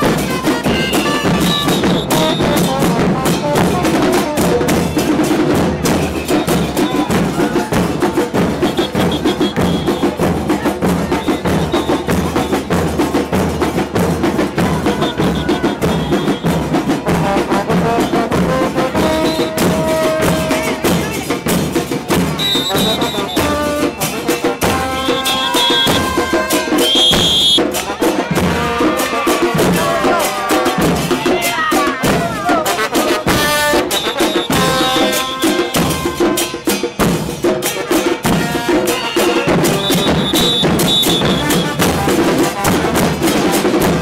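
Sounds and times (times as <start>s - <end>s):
drum and cymbal percussion: 0.0s - 44.0s
high held notes: 22.4s - 27.7s.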